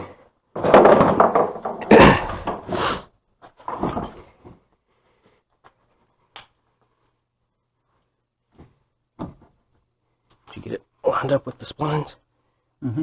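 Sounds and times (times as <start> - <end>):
metal car parts clattering: 0.6 - 2.8.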